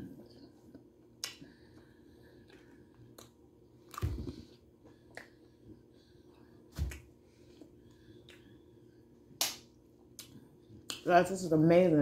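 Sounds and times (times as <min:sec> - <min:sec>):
person chewing: 0:00.5 - 0:05.9, 0:06.9 - 0:08.7.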